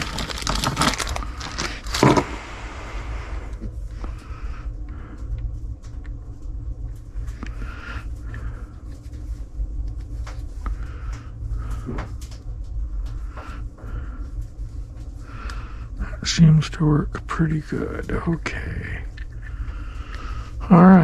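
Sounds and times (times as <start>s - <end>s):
small parts clicking and knocking: 0.0s - 2.4s
low hum: 0.0s - 21.0s.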